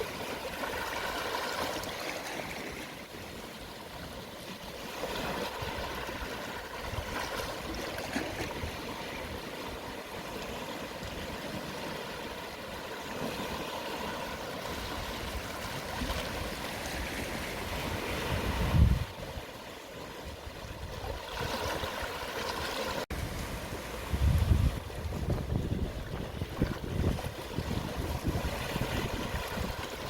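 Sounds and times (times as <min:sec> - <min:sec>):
gentle waves washing over shore: 0:00.0 - 0:30.0
wind buffeting microphone: 0:14.8 - 0:19.5, 0:23.1 - 0:30.0.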